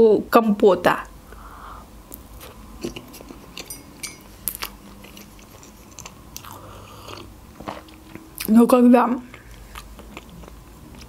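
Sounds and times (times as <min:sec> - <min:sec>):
chewing soft food: 0:04.4 - 0:08.5, 0:09.2 - 0:11.0.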